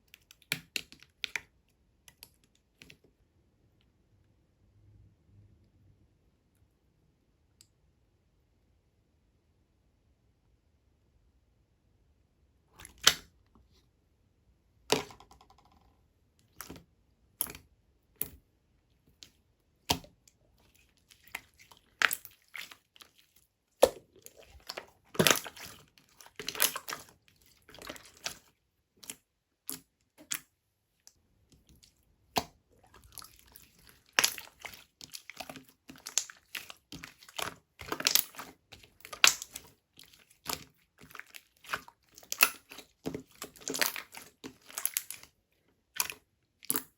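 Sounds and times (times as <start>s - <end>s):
slime squished by hand: 19.8s - 30.5s, 31.8s - 45.3s.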